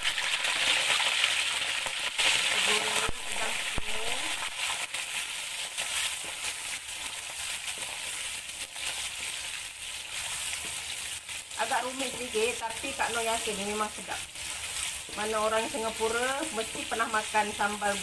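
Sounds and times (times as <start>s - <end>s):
prawns sizzling in hot oil: 0.0s - 18.0s
wooden spatula stirring: 12.0s - 16.8s.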